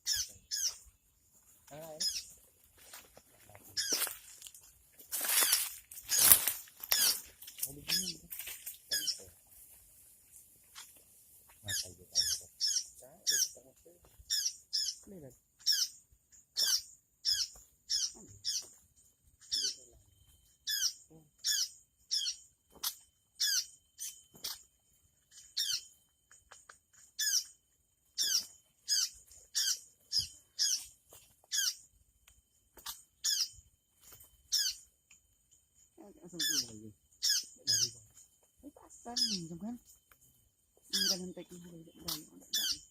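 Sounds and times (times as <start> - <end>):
bird sharp chirps: 0.0 - 1.0, 11.6 - 13.7, 19.4 - 31.9, 32.7 - 33.6, 36.3 - 38.3.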